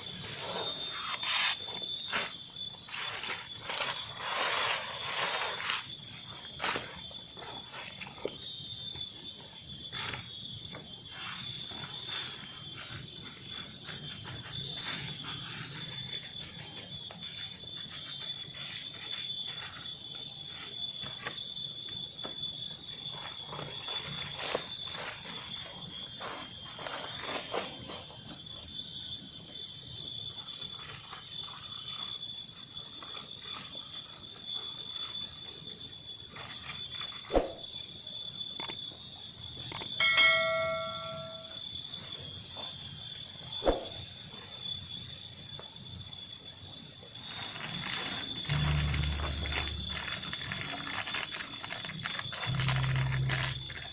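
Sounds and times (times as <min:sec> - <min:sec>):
high-pitched insect drone: 0:00.0 - 0:53.9
sharp metallic clang ringing: 0:40.0 - 0:41.6.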